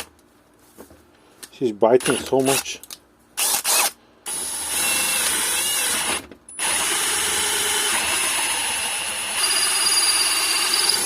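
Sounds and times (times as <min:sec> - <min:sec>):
electric drill boring into wood: 0:03.4 - 0:11.0.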